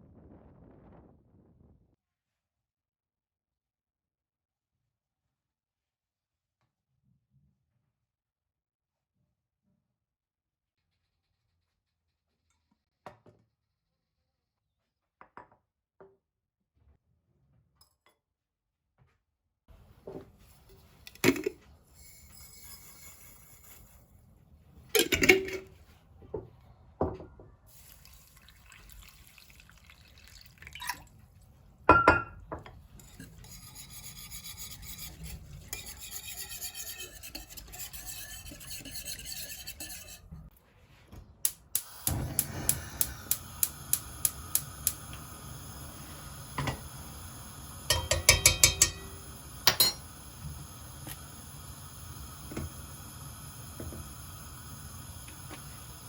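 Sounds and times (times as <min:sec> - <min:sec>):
rubbing and scraping: 0:32.9 - 0:40.9
utensils and dishes clinking: 0:47.9 - 0:50.1.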